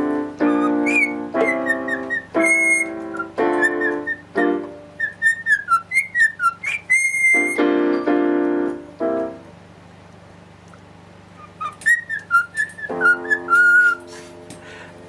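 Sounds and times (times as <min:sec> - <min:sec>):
cockatiel whistling: 0:00.0 - 0:07.6, 0:11.4 - 0:14.0
piano chords: 0:00.0 - 0:15.0.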